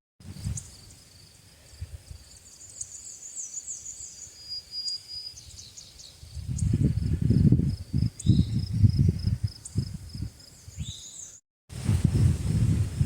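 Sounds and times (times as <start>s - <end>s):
insects chirping: 0.2s - 11.4s
birds chirping: 2.3s - 7.0s, 8.0s - 8.8s, 10.4s - 11.4s.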